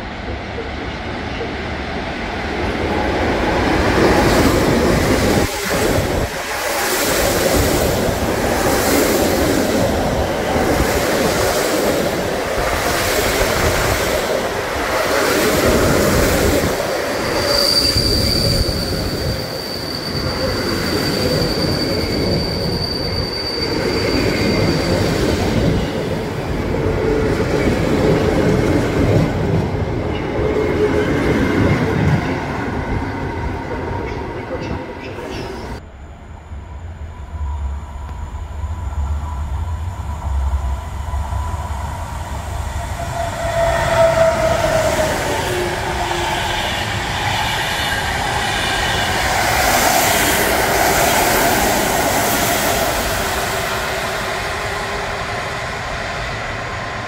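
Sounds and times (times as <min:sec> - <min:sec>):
train rumbling past: 0:00.0 - 0:57.0
high wheel squeal: 0:17.0 - 0:25.2.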